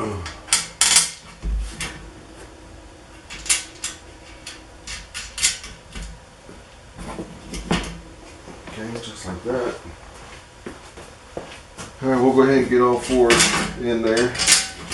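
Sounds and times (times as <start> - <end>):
bolts and nuts clinking on metal: 3.3 - 6.1, 13.0 - 14.9.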